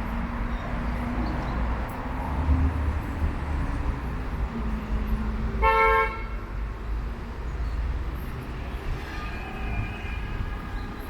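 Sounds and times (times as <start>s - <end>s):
traffic rumble: 0.0s - 11.0s
vehicle horn toot: 5.6s - 6.4s.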